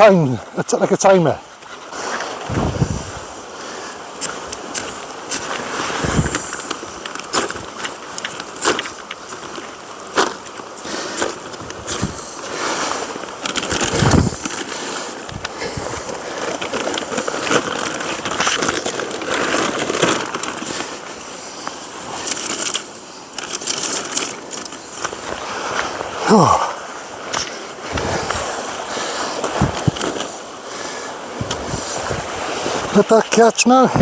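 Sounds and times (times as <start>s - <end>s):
scraping rustle: 1.0s - 34.0s
handling rustling: 1.6s - 33.0s
sticks snapping: 4.2s - 21.0s.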